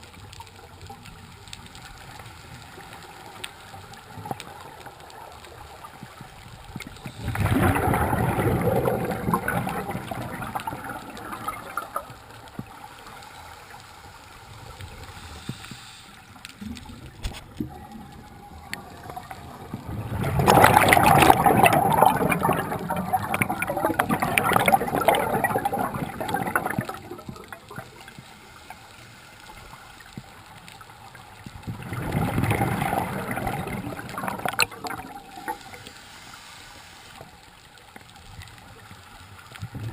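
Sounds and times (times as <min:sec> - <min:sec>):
gurgling exhaust bubbles: 0:07.1 - 0:12.1, 0:17.6 - 0:27.8, 0:31.7 - 0:35.6
diver breathing through regulator: 0:15.0 - 0:16.4.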